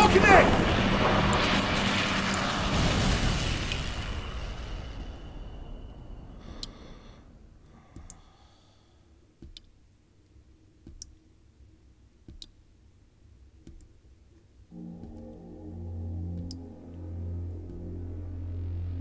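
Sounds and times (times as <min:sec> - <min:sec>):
faint sharp clicks: 0:07.9 - 0:08.3, 0:09.4 - 0:11.2.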